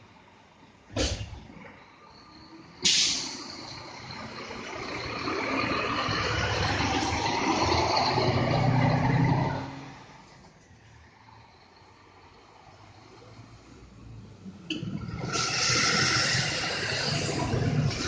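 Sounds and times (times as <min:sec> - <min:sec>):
bus diesel engine: 0:00.0 - 0:18.0
air brakes hissing: 0:02.8 - 0:03.9, 0:15.2 - 0:18.0.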